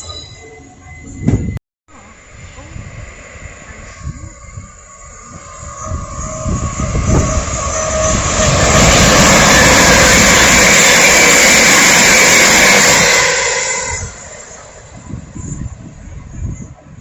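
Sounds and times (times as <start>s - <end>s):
train passing at speed: 0.5s - 17.0s.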